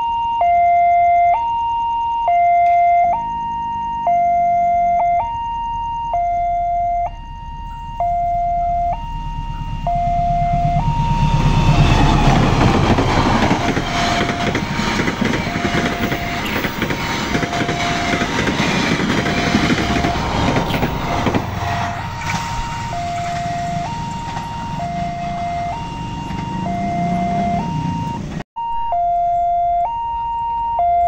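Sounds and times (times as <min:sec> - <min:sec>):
level crossing alarm: 0:00.0 - 0:31.0
train passing: 0:07.0 - 0:28.4.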